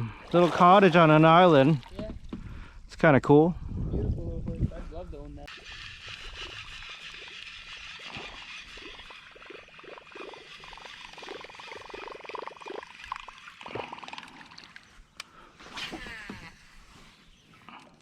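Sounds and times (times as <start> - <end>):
water splashing around kayak: 0.0 - 2.8, 5.5 - 16.0.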